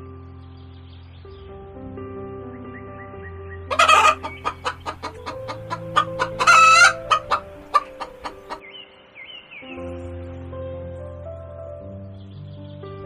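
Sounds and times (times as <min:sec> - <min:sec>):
soft background music: 0:00.0 - 0:13.0
chicken clucking: 0:03.7 - 0:08.6
chicken harsh calls: 0:03.7 - 0:08.6.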